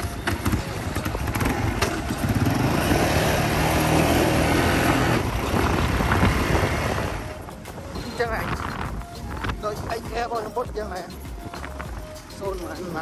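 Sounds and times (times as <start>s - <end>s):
small motorcycle engine running: 0.0s - 7.4s.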